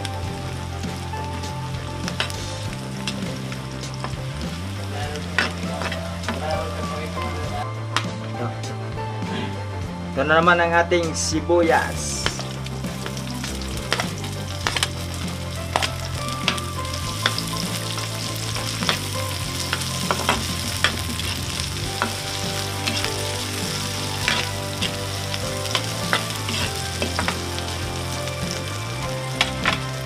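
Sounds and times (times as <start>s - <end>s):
vegetables sizzling in wok: 0.0s - 7.0s, 11.9s - 30.0s
metal spatula scraping wok: 15.6s - 27.9s.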